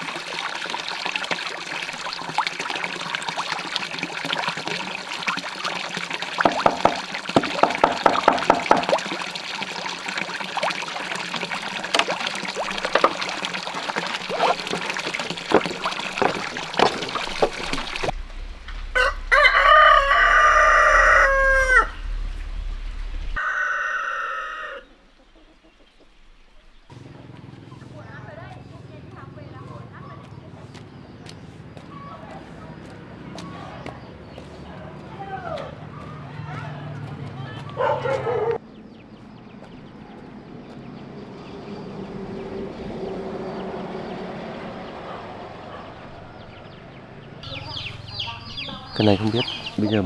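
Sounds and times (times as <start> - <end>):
running water: 0.0 - 23.4, 47.4 - 50.0
small knocks and clatters: 6.4 - 9.1, 11.6 - 19.4
rooster crowing: 18.9 - 22.5, 23.3 - 24.9.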